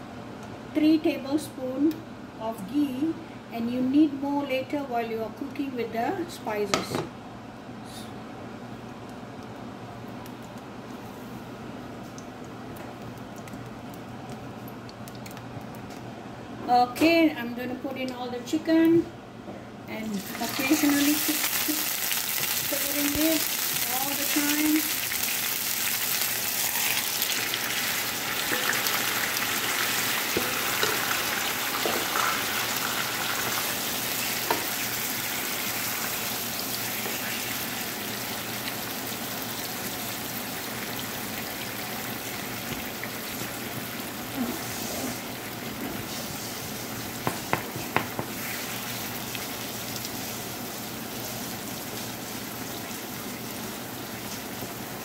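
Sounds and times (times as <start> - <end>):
chicken sizzling in frying pan: 20.2 - 55.0.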